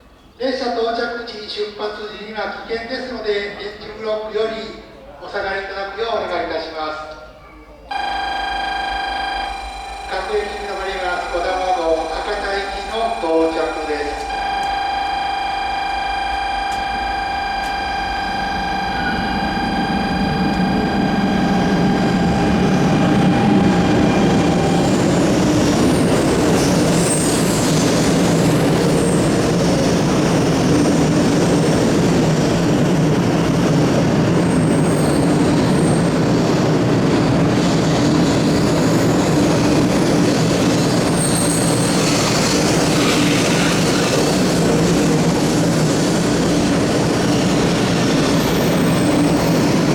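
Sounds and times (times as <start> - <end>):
train rushing into station: 0.0 - 49.9
low hum: 7.9 - 25.6
steady electronic tone: 7.9 - 26.2
high wheel squeals: 7.9 - 29.8, 34.4 - 36.2, 38.1 - 45.6.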